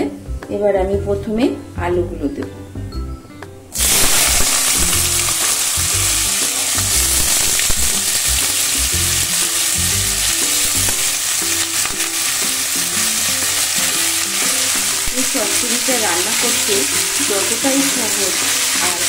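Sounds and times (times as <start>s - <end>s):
potato sticks sizzling in oil: 3.8s - 19.0s.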